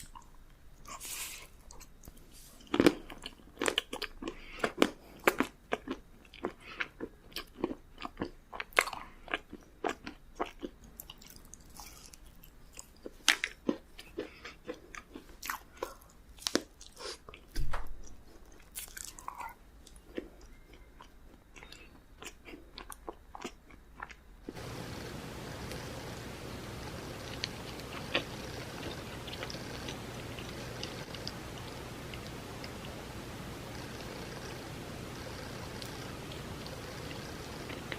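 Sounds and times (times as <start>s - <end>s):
chewing with wet mouth clicks: 1.6s - 24.7s, 27.2s - 33.0s.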